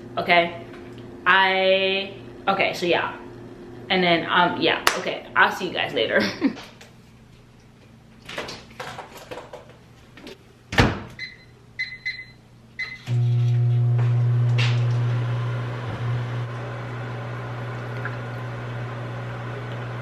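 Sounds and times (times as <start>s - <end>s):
keypad beeps: 11.2s - 13.0s
microwave oven humming: 11.2s - 20.0s.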